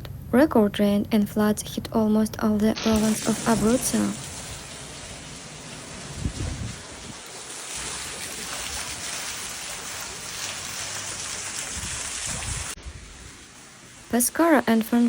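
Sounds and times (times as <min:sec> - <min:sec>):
low rumbles: 0:00.0 - 0:10.0
heavy rain falling: 0:02.8 - 0:15.0.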